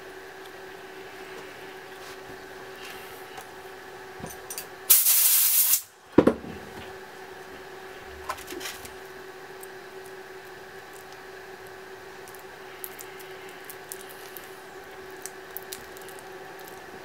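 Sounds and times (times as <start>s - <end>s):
steady electrical hum: 0.0s - 17.0s
loud spraying hiss: 4.9s - 5.9s.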